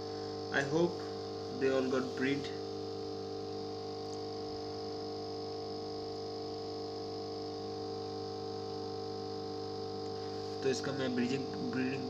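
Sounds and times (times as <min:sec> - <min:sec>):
steady electric hum: 0:00.0 - 0:12.0.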